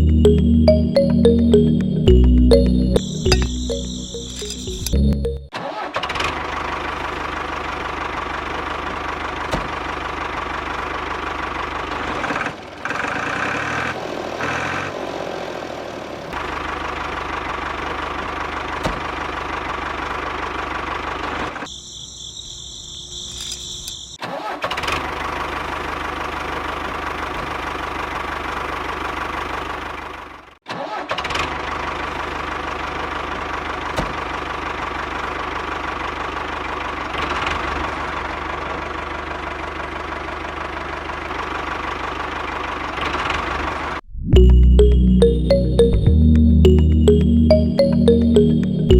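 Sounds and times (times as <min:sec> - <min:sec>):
small diesel engine running: 0:06.1 - 0:21.6, 0:24.8 - 0:30.5, 0:31.5 - 0:43.9.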